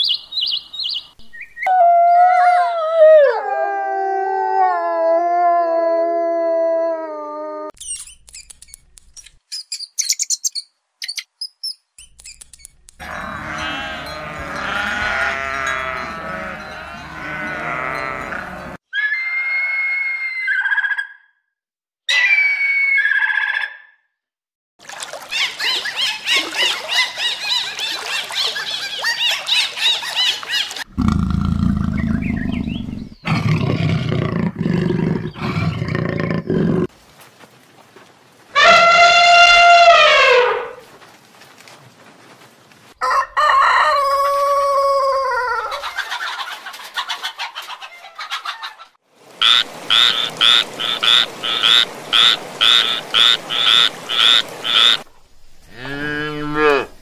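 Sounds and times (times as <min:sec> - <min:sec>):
elephant calls: 0:13.0 - 0:21.0, 0:38.6 - 0:40.8
tree frog croaking: 0:49.4 - 0:55.1.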